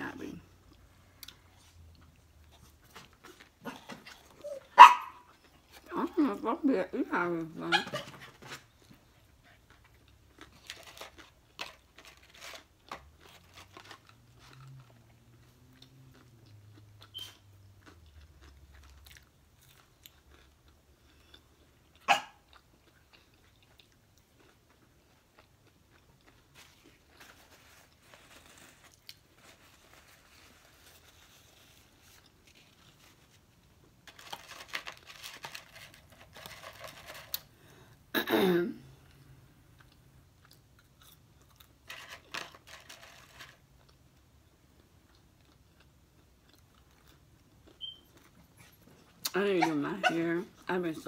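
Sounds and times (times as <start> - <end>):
chewing and mouth smacking: 14.4 - 27.2, 43.7 - 49.4.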